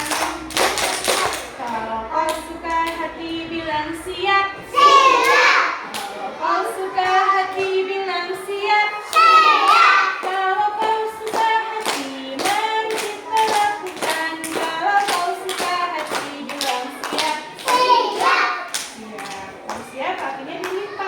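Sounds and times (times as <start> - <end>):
hand claps: 0.0 - 3.0, 9.1 - 20.8
high voices singing: 0.0 - 21.0.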